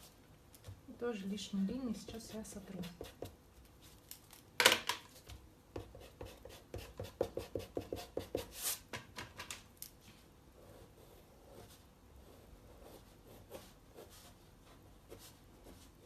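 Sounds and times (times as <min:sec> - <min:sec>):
eraser rubbing on paper: 0:02.1 - 0:03.3, 0:05.8 - 0:08.9.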